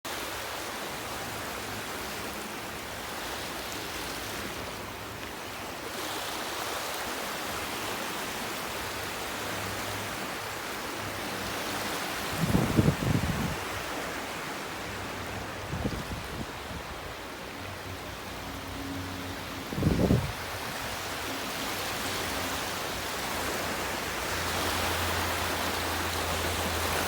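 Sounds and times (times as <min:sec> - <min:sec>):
wind noise: 0:12.2 - 0:13.9, 0:15.2 - 0:17.2, 0:19.4 - 0:21.3.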